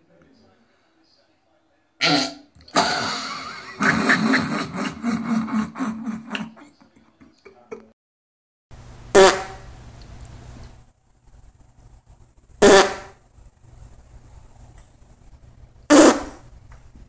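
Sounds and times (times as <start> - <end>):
rasping fart sound: 2.0 - 3.9, 9.1 - 9.7, 12.6 - 13.2, 15.9 - 16.5.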